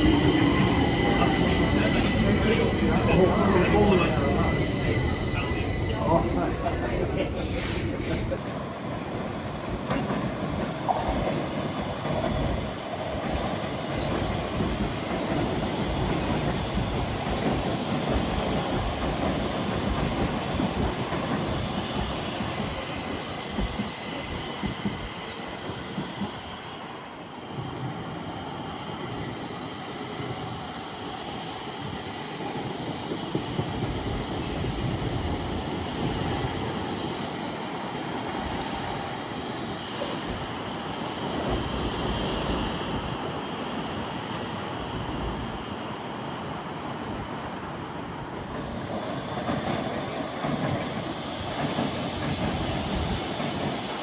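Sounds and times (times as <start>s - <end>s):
high wheel squeal: 0.0s - 8.3s
train wheels on rails: 0.0s - 54.0s.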